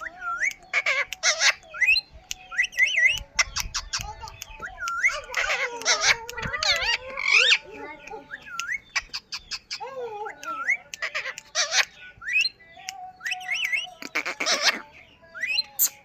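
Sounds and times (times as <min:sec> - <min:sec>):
parrot clicks: 0:00.2 - 0:07.6.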